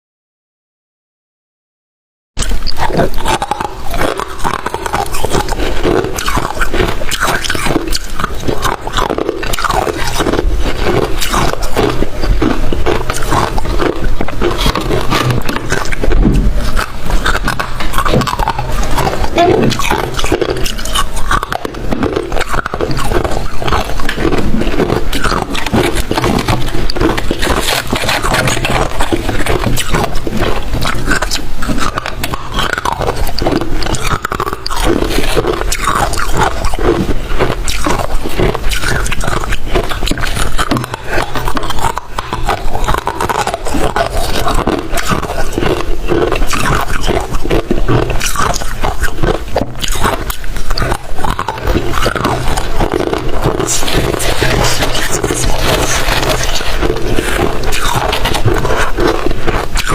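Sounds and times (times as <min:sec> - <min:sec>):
chewing crunchy ice: 0:02.4 - 0:59.9.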